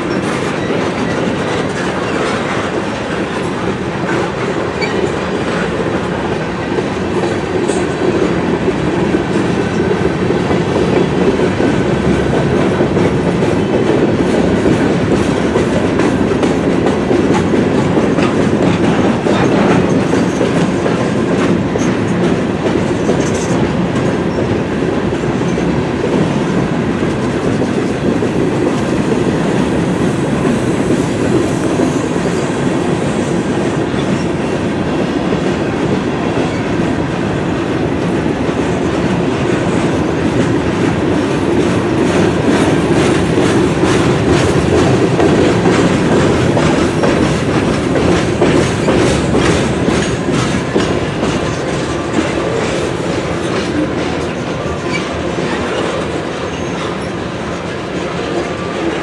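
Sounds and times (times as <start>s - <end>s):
freight cars rumbling and rattling: 0.0s - 59.0s
wheels clicking over rail joints: 37.8s - 59.0s.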